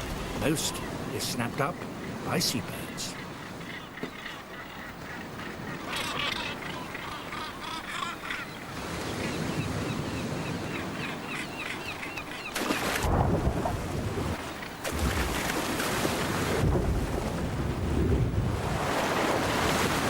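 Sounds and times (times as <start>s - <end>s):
seabirds calling harshly: 0.0s - 13.0s
sea and wind rushing: 0.0s - 20.0s.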